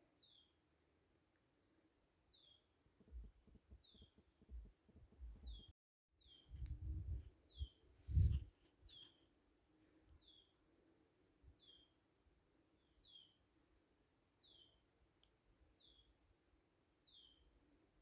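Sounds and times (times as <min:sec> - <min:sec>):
low rumbling thumps: 0:06.5 - 0:07.3.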